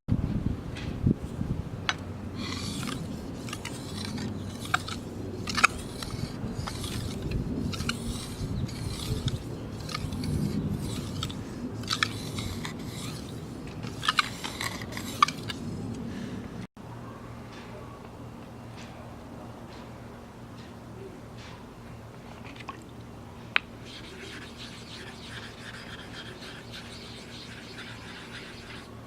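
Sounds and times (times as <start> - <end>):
knife scraping on whetstone: 2.4 - 15.9, 23.8 - 29.0.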